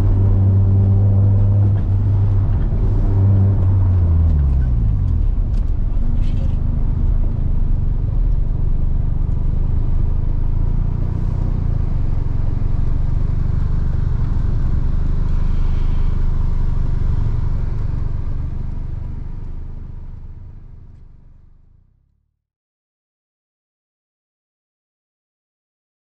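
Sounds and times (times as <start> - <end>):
road noise: 0.0 - 21.6
car engine running: 0.0 - 21.8.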